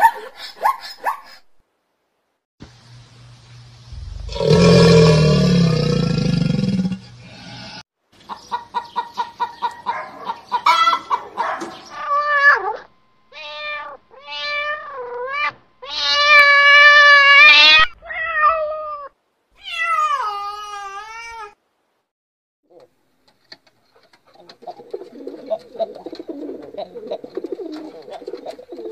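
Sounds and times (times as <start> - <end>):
cat meowing: 12.0 - 21.6.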